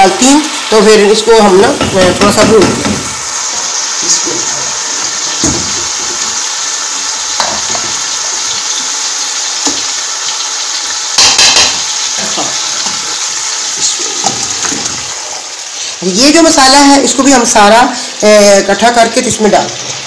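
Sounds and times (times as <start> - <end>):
oil sizzling in pot: 0.0 - 20.0
spatula knocking pot: 1.7 - 3.1.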